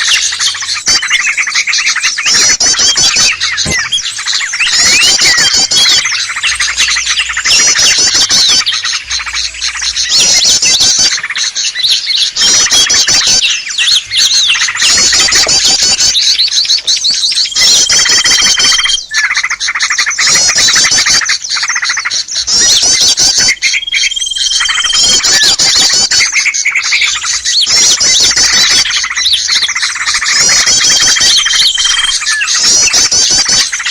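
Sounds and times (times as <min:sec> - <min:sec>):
held whistle: 0:00.0 - 0:11.2
chorus of songbirds chirping: 0:00.0 - 0:33.9.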